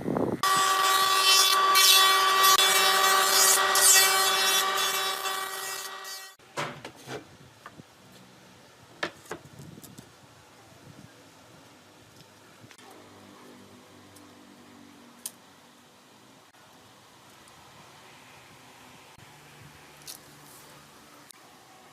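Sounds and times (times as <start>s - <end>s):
power tool cutting wood: 0.4s - 6.4s.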